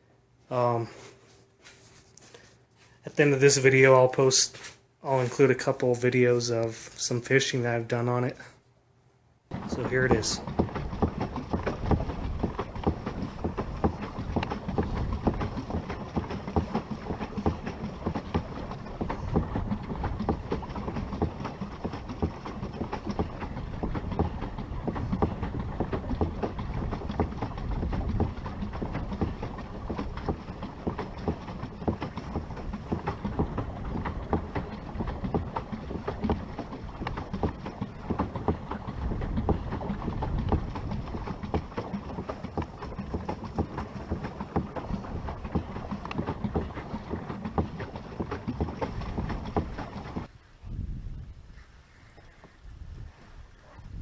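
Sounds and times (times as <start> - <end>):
pedal boat rattling clatter: 9.5 - 50.3.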